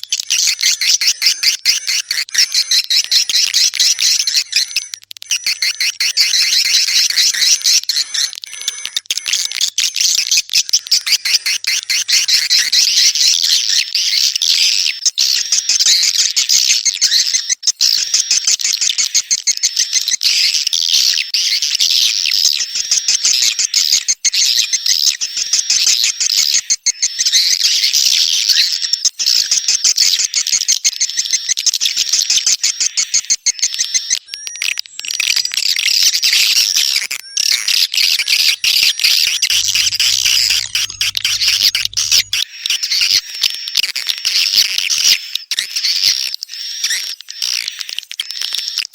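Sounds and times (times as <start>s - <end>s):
swiftlets chirping: 38.0s - 42.4s
rapid clicks: 38.3s - 42.4s.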